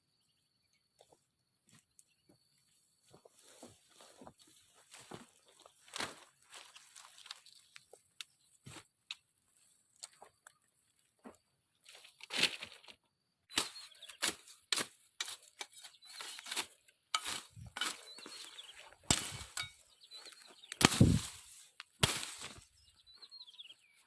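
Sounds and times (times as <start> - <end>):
branches rustling and snapping: 5.0 - 8.3, 16.2 - 22.8.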